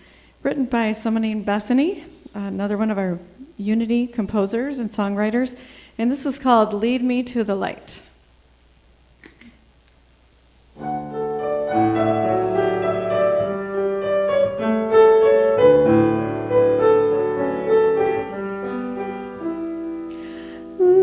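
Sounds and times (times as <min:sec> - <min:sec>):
piano playing hymn-like chords: 0:10.8 - 0:21.0.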